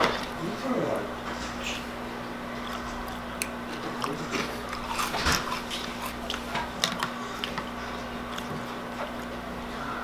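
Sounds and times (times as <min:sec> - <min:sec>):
person chewing crunchy cereal: 0:02.5 - 0:09.5.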